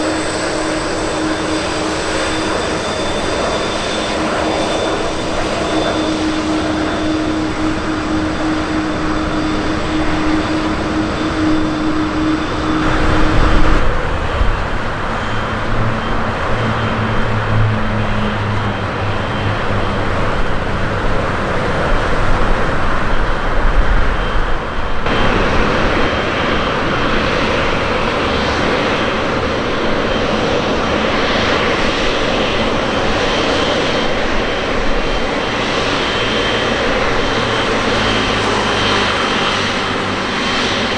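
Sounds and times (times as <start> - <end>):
held tone: 0.0 - 15.5
jet engines running: 0.0 - 40.9.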